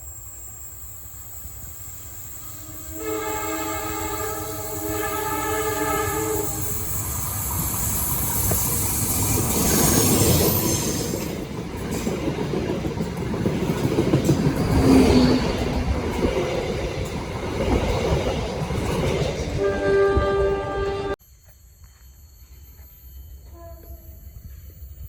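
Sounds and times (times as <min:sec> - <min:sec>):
train horn: 0:02.5 - 0:06.9, 0:19.6 - 0:21.2, 0:23.5 - 0:24.1
train wheels clattering on rails: 0:06.4 - 0:21.2.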